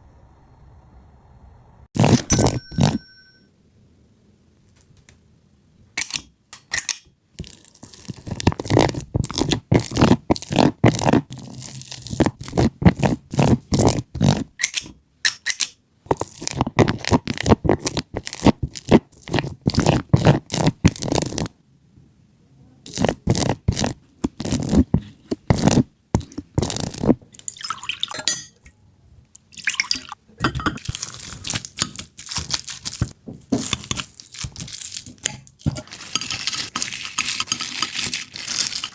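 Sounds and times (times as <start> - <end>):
quick crunching and scraping knocks: 22.9 - 27.2, 30.8 - 38.9.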